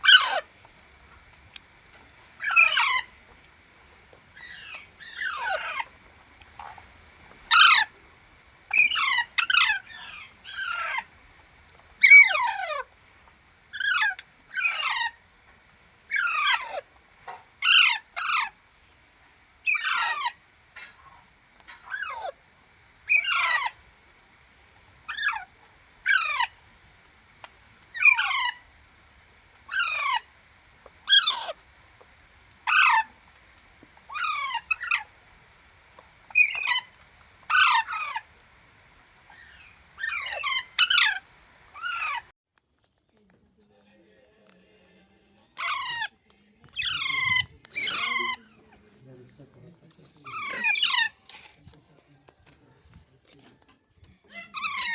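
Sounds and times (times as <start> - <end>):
baby parrots squawking: 0.0 - 0.5, 2.4 - 3.2, 4.4 - 6.0, 7.5 - 8.0, 8.7 - 11.1, 12.0 - 12.9, 13.7 - 15.2, 16.1 - 16.9, 17.6 - 18.6, 19.6 - 21.0, 21.7 - 22.4, 23.0 - 23.8, 25.0 - 26.7, 27.9 - 28.7, 29.7 - 30.3, 31.0 - 31.6, 32.6 - 33.2, 34.1 - 35.1, 36.3 - 38.3, 39.3 - 42.3, 45.5 - 48.8, 50.1 - 51.5, 54.3 - 54.9.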